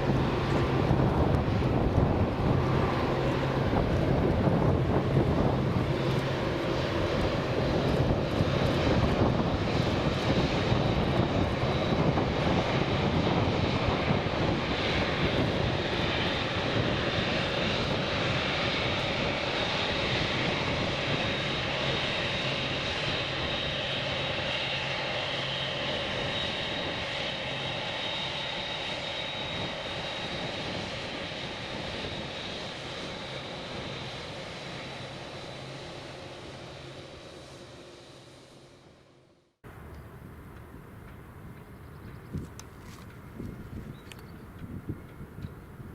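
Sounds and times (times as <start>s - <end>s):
jet engine rush with whine: 0.0s - 45.9s.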